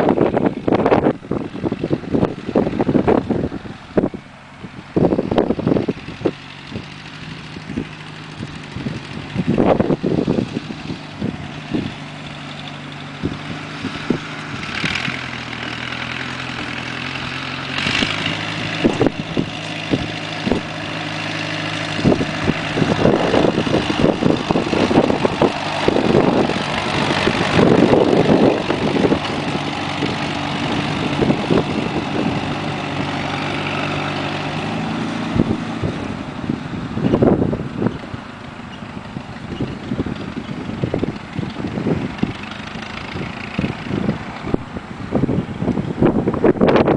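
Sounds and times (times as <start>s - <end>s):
garden tractor engine running: 0.0s - 46.9s
wind hitting microphone: 0.0s - 46.9s.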